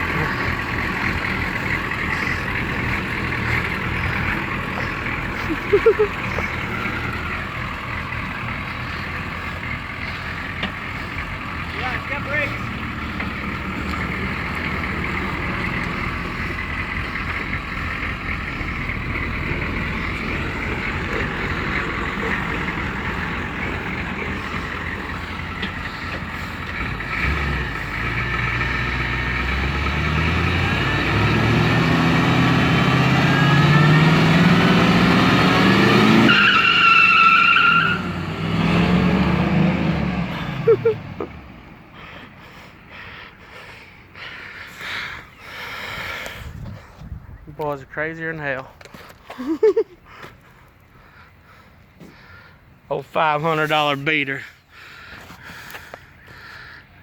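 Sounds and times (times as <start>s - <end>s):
tyres squealing: 0.0s - 28.8s, 29.4s - 38.2s
diesel engine revving hard: 0.0s - 46.5s.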